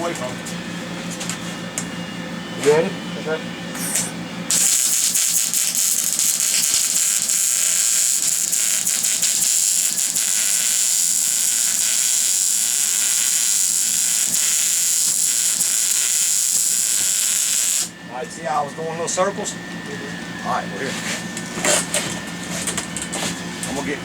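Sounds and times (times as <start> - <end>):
welder arc crackling and hissing: 3.8 - 18.0.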